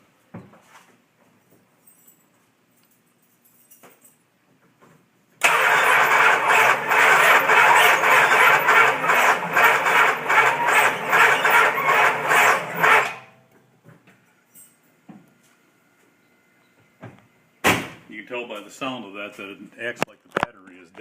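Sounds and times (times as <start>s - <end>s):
starter cranking engine: 5.4s - 13.3s.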